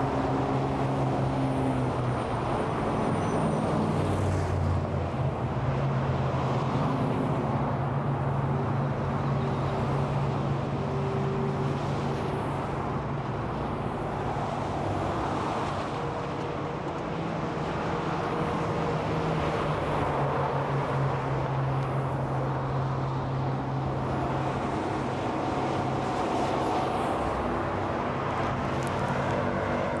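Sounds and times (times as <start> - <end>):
freeway traffic noise: 0.0 - 30.0
vehicles passing with a whine: 0.0 - 30.0.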